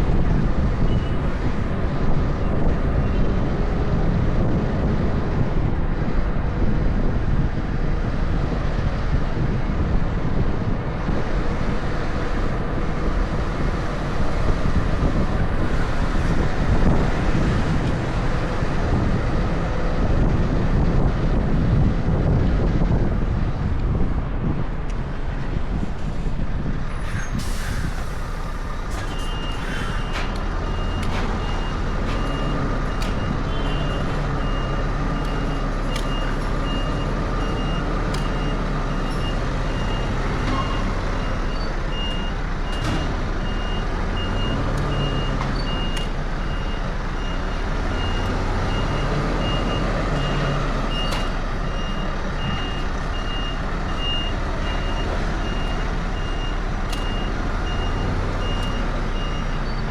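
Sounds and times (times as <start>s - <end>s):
diesel truck engine running: 0.0s - 59.9s
truck reversing alarm beeping: 27.4s - 59.9s.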